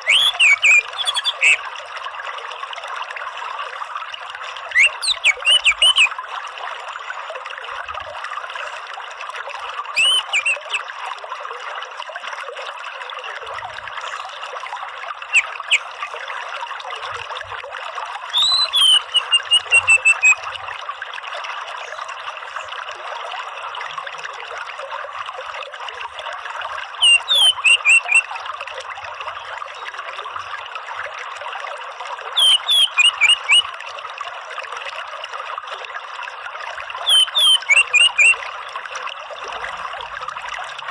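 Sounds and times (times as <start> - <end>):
thrush chirping: 0.0 - 1.6, 10.0 - 10.8, 15.3 - 15.9, 18.4 - 20.4
trickle of running water: 0.0 - 40.9.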